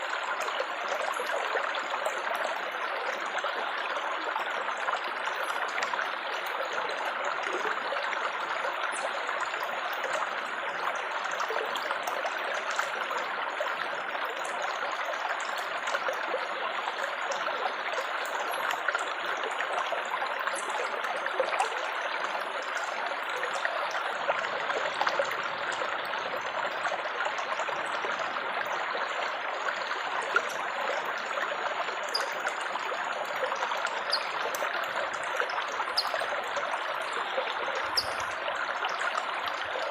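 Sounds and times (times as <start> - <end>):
water trickling and babbling: 0.0 - 39.9.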